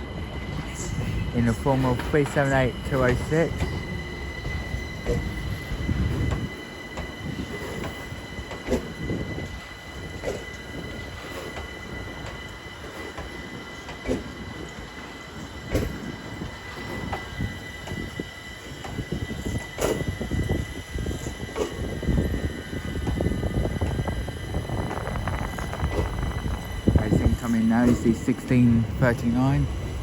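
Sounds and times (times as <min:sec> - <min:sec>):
train whine and rumble: 0:00.0 - 0:30.0.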